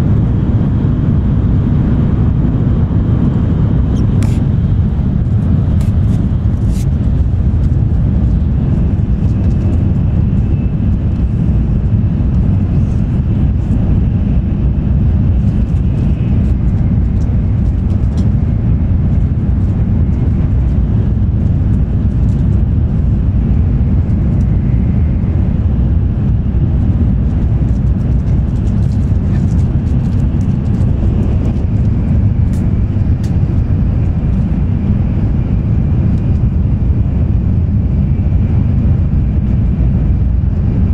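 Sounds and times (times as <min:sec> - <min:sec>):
low rumble inside train: 0:00.0 - 0:40.9.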